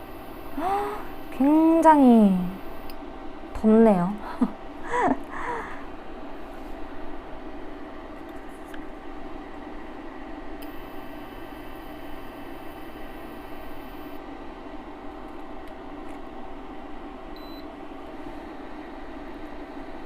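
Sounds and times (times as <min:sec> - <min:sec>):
faint high electronic whine: 0:00.0 - 0:03.6, 0:09.4 - 0:15.6, 0:16.4 - 0:20.0.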